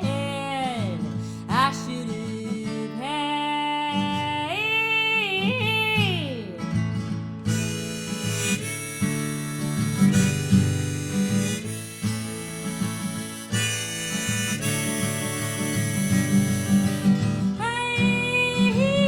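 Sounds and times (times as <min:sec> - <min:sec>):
strummed acoustic guitar: 0:00.0 - 0:19.0
harmonica sustained notes: 0:07.5 - 0:19.0.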